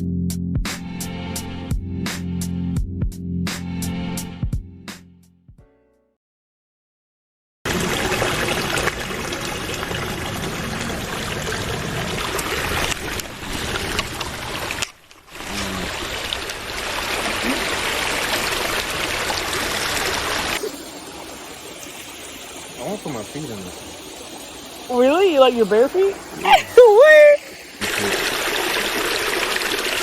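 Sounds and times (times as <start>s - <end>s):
creek water flowing: 7.7s - 30.0s.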